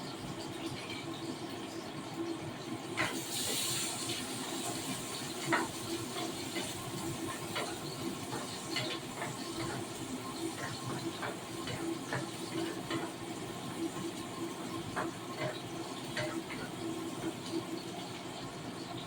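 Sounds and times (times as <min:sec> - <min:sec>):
food sizzling in a frying pan: 0:00.1 - 0:19.0.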